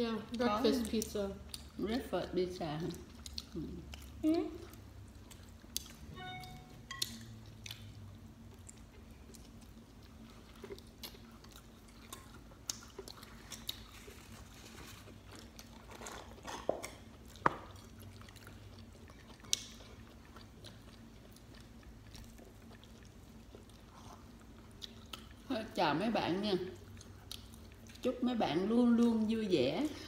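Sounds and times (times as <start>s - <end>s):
people chewing pizza: 0.3s - 30.0s.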